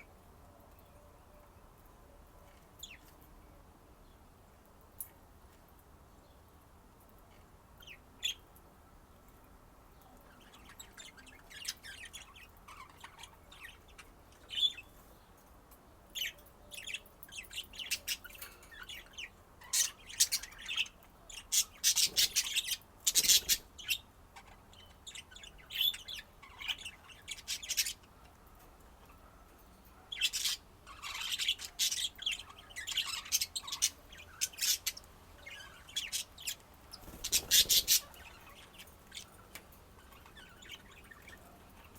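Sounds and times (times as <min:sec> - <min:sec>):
budgerigars chirping: 0:16.2 - 0:28.1, 0:30.1 - 0:39.4.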